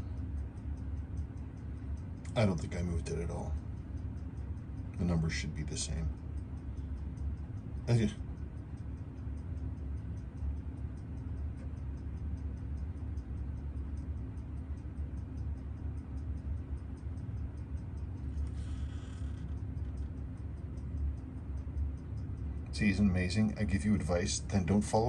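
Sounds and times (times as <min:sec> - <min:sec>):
fast even ticking: 0:00.0 - 0:25.0
steady low hum: 0:00.0 - 0:25.0.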